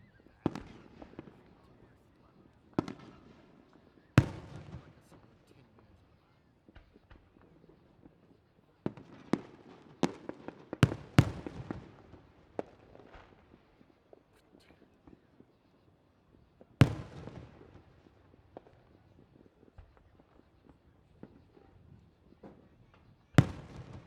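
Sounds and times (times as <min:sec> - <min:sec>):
fireworks bangs: 0:23.4 - 0:24.0.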